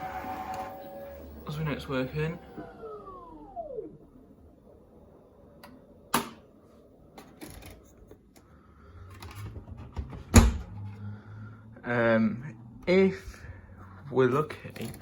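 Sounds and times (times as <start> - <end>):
washing machine motor whine: 0.0 - 6.1
washing machine click: 6.1 - 6.4.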